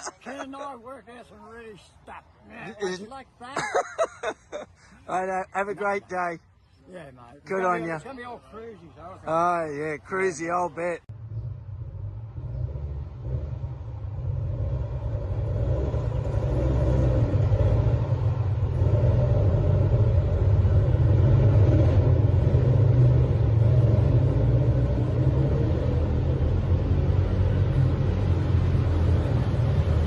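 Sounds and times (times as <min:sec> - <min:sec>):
dirt bikes rumbling: 0:11.2 - 0:30.0.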